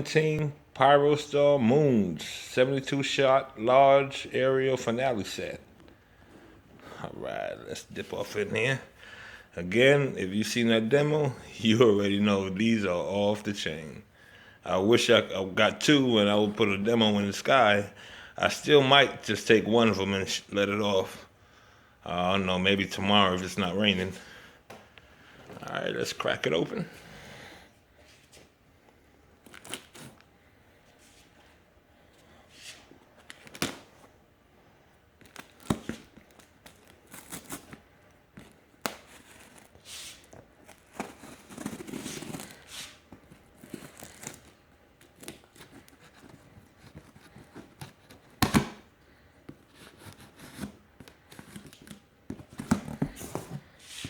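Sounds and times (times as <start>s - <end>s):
cardboard and tape ripping: 29.5s - 30.2s, 38.4s - 48.8s.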